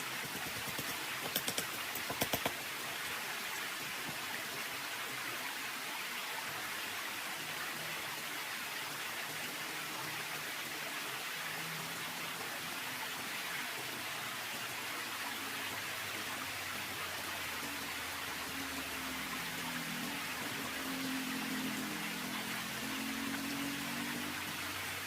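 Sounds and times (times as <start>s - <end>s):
sharp clicks: 0.4s - 2.6s.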